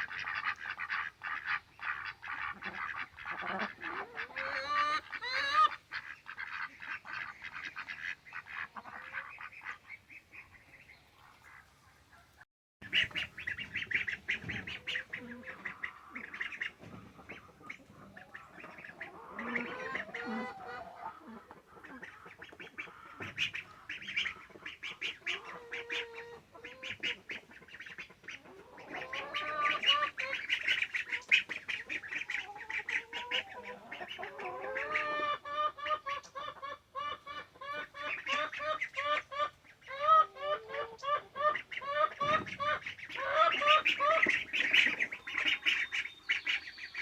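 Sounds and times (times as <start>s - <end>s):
ducks quacking: 0.0s - 47.0s.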